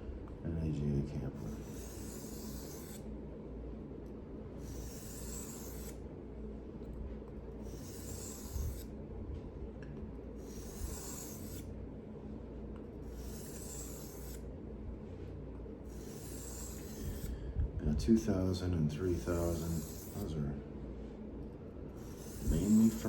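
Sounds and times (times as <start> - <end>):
steady low hum: 0.0 - 23.0
knife scraping on whetstone: 1.4 - 3.0, 4.6 - 6.0, 7.6 - 8.9, 10.4 - 11.7, 13.0 - 14.4, 15.9 - 17.3, 19.1 - 20.3, 22.0 - 23.0.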